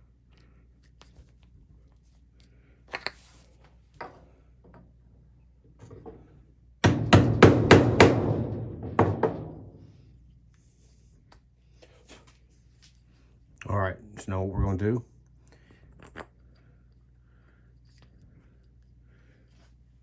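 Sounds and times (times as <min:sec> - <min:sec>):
hammer striking chisel into wood: 0:06.8 - 0:08.4.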